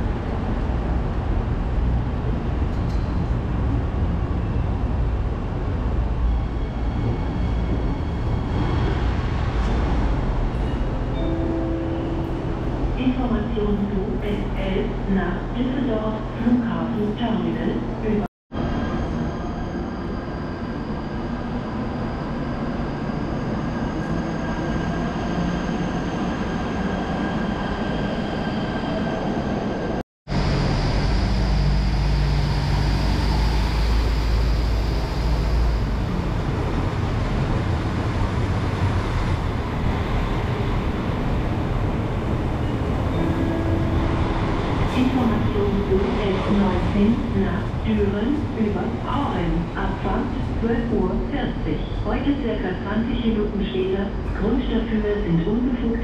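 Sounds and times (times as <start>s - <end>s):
train rail rumble: 29.6s - 56.0s.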